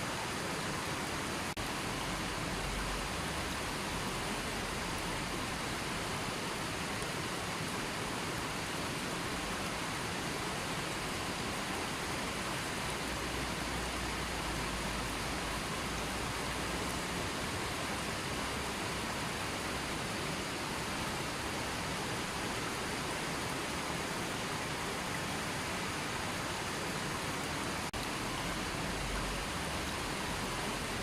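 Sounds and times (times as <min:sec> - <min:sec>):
river water rushing: 0:00.0 - 0:31.0.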